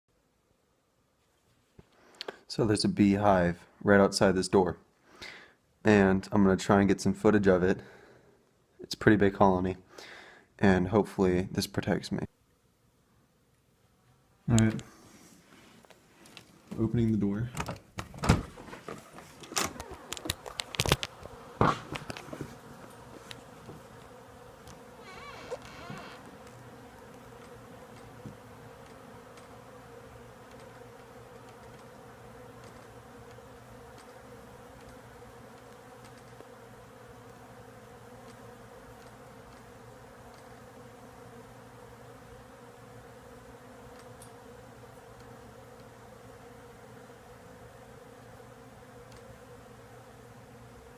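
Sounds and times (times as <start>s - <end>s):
door clicks and knocks: 17.6s - 18.7s
bees humming: 18.9s - 50.9s.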